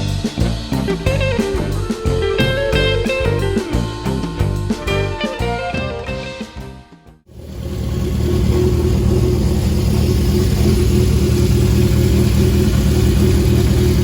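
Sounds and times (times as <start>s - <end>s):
motorcycle engine running: 7.3s - 14.0s.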